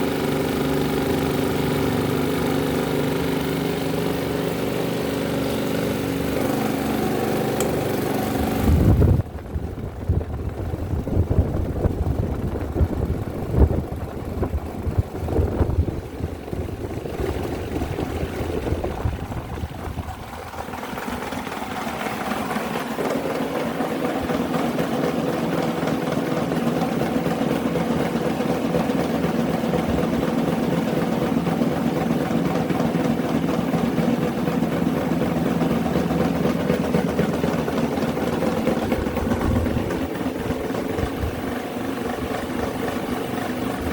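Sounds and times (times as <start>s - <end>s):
electric fan motors humming: 0.0s - 43.9s.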